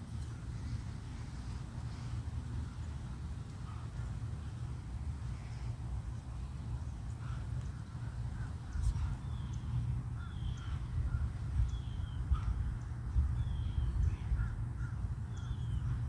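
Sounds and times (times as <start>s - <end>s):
birds calling: 0.0s - 16.0s
soft bird chirps: 5.3s - 16.0s.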